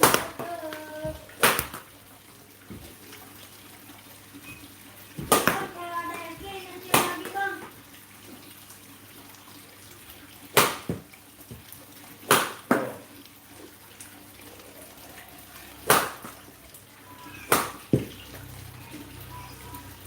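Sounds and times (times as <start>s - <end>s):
racket hitting shuttlecock: 17.5s - 18.1s.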